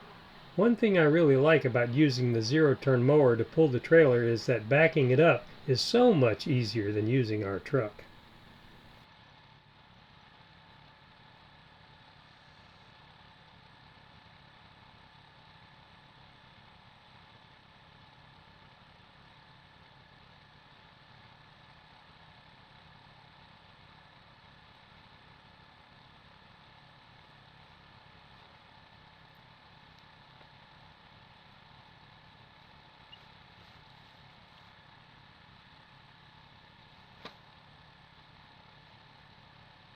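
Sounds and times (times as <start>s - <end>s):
mower engine humming: 0.0s - 9.0s.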